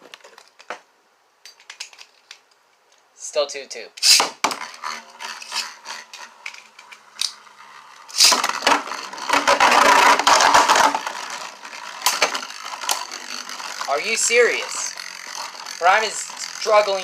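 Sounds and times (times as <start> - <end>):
spinning tops launched: 4.0 - 6.4, 7.0 - 17.0
plastic spinning tops rattling: 4.0 - 17.0
spinning tops clashing: 4.0 - 17.0.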